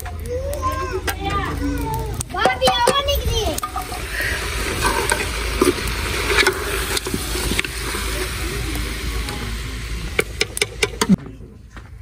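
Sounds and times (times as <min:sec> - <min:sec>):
steady low rumble: 0:01.8 - 0:12.0
food sizzling in a pot: 0:02.7 - 0:11.2
metal ladle scraping a pot: 0:03.6 - 0:08.0.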